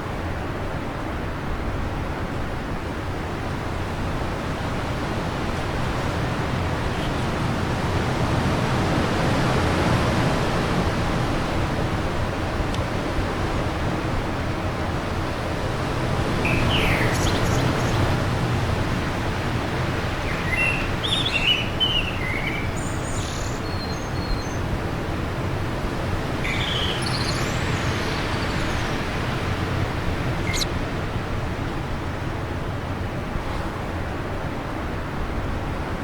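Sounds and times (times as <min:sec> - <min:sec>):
small birds chirping: 0:06.0 - 0:08.1, 0:15.9 - 0:30.7.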